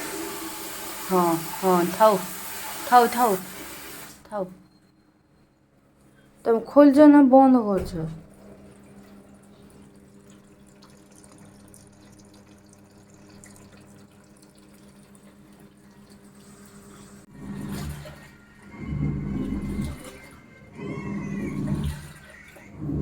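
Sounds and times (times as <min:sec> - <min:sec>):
water running into washing machine: 0:00.0 - 0:04.2, 0:07.8 - 0:23.0
low motor hum: 0:14.8 - 0:23.0.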